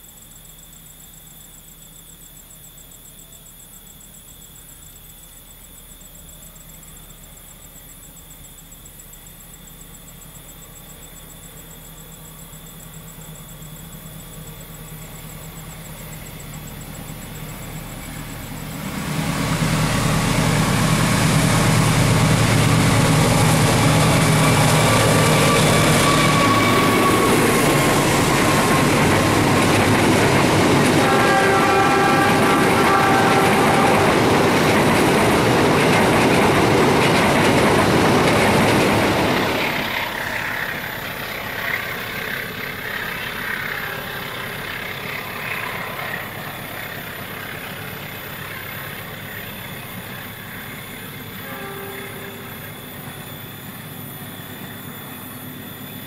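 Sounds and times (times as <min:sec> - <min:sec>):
diesel locomotive engine running: 0:11.6 - 0:56.0
coaches rolling on rails: 0:12.9 - 0:56.0
train horn: 0:20.2 - 0:34.8, 0:51.2 - 0:53.2.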